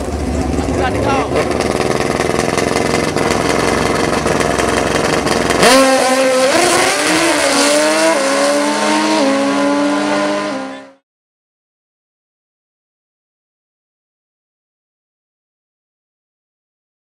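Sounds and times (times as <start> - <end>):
drag-racing engine accelerating: 0.0 - 11.0.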